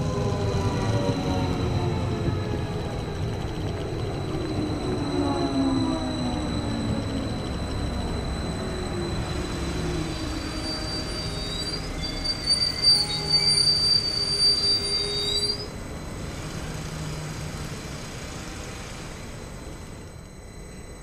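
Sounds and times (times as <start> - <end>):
electric train braking: 0.0 - 21.0
high-pitched brake squeal: 4.2 - 21.0.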